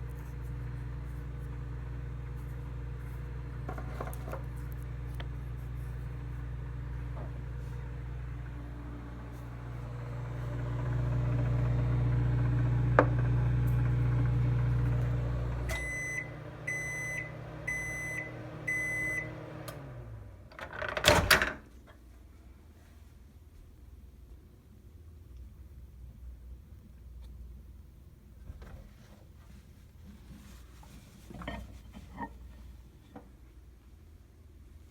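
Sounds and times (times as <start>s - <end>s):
fan winding down: 0.0s - 20.6s
microwave oven humming: 0.0s - 21.7s
microwave beeps: 15.5s - 19.9s.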